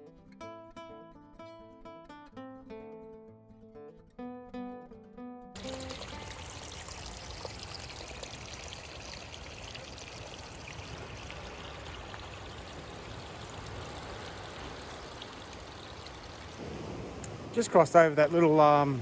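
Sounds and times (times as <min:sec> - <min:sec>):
stream trickling: 0:05.6 - 0:18.9.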